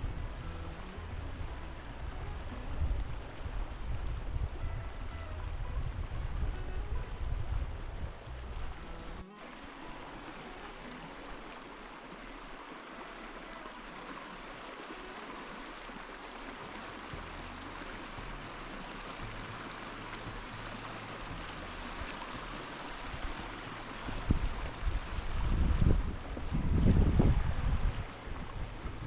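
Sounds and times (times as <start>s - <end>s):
wind rumble on microphone: 0.0s - 9.2s, 16.6s - 29.0s
running water: 0.0s - 29.0s.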